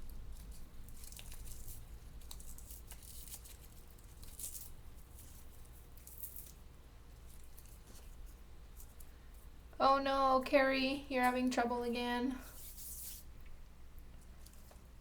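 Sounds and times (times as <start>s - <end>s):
faint low hum: 0.0s - 15.0s
paper rustling and crinkling: 0.2s - 9.4s, 12.5s - 13.3s.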